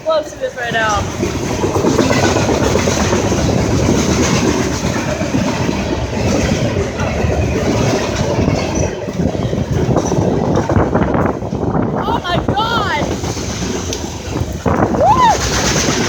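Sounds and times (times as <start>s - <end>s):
train wheels rumbling on rails: 0.0s - 16.0s
rapid wheel clicks: 0.6s - 16.0s.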